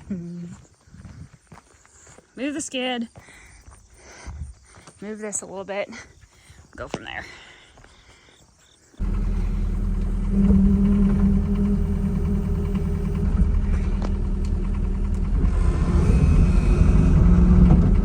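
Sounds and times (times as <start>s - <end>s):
heavy diesel engine running: 9.0s - 18.0s.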